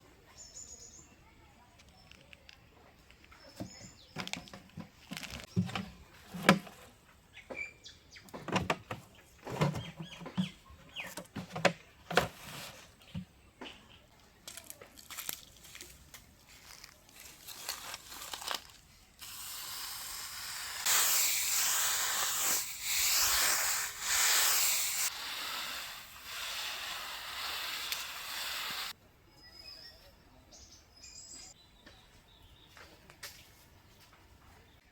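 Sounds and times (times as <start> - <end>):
loud steady hiss: 19.2 - 29.0.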